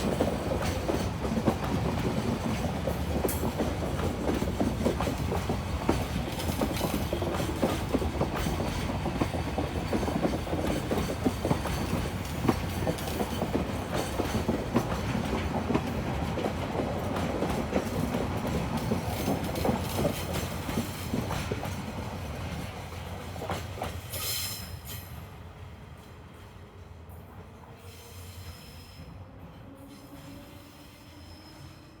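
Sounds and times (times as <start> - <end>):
train wheels clattering over rail joints: 0.0 - 25.1.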